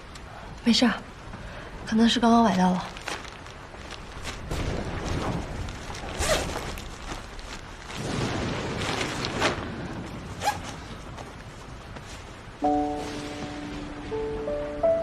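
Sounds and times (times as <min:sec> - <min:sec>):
cloth rustling and handling: 0:02.4 - 0:08.1.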